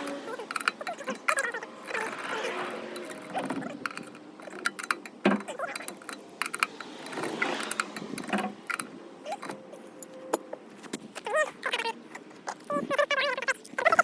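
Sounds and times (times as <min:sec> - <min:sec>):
metallic clicks of hand tools: 0:00.0 - 0:11.1.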